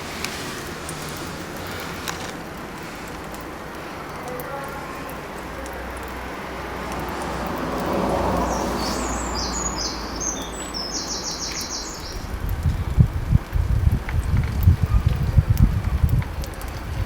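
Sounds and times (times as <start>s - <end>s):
steady rushing background noise: 0.0s - 4.0s
small bird chirping: 8.4s - 12.3s.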